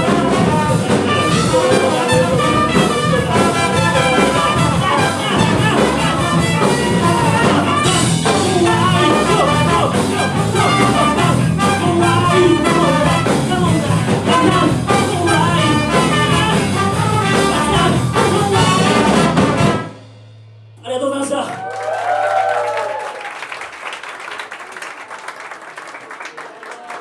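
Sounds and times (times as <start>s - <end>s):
funk band with brass: 0.0s - 20.2s.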